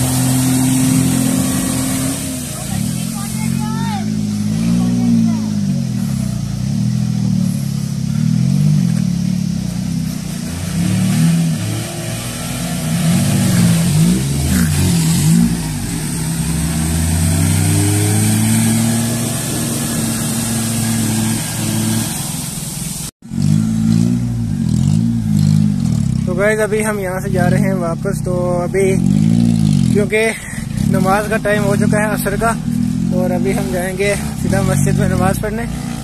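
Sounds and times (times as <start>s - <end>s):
water splashing off wheels: 0.0s - 6.3s, 8.2s - 23.1s
car engine revving: 0.0s - 36.0s.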